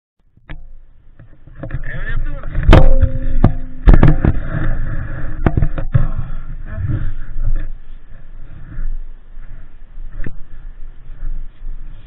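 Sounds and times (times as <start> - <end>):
loud sharp knocks and thumps: 2.6 - 4.8.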